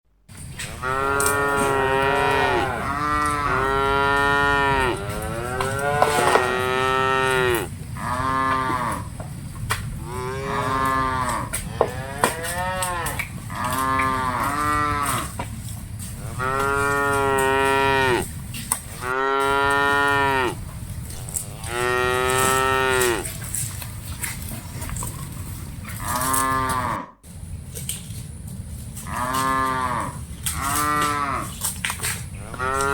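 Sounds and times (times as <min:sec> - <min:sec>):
steady low rumble: 0:00.3 - 0:26.2, 0:31.2 - 0:32.9
cattle mooing: 0:00.6 - 0:09.1, 0:10.0 - 0:15.4, 0:16.1 - 0:18.4, 0:19.0 - 0:23.6, 0:25.9 - 0:27.1, 0:29.0 - 0:31.7, 0:32.4 - 0:32.9.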